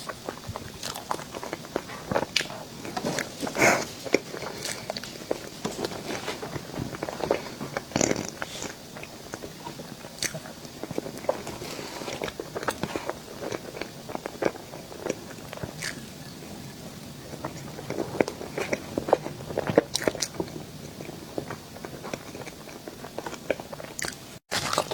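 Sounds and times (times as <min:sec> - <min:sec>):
person crunching dessert: 0:07.0 - 0:16.2, 0:21.0 - 0:24.9.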